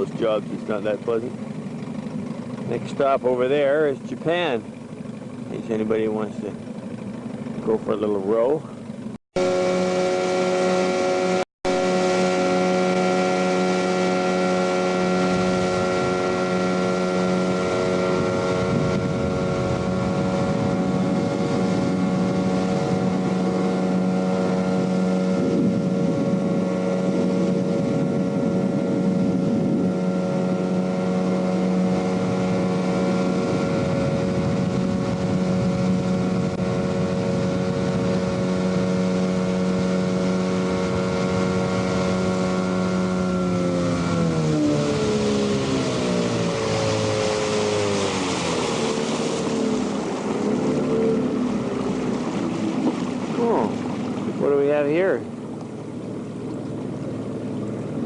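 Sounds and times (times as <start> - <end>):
boat engine running: 0.0 - 58.0
wind on microphone: 9.4 - 55.3.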